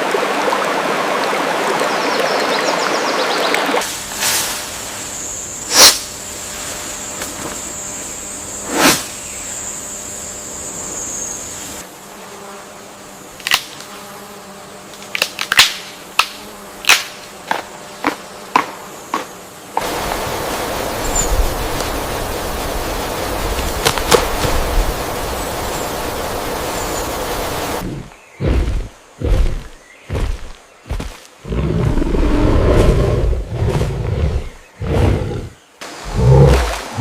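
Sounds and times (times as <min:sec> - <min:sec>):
steady rushing noise: 0:19.8 - 0:28.2.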